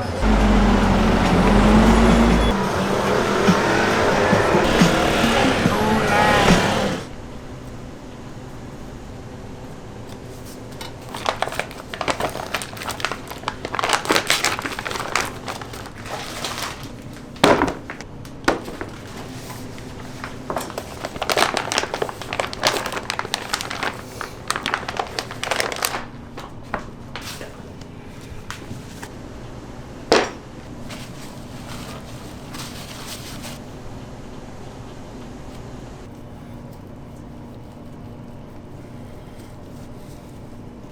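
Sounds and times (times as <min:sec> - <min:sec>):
wrapping crinkling and rustling: 0:10.0 - 0:29.1, 0:30.8 - 0:33.8.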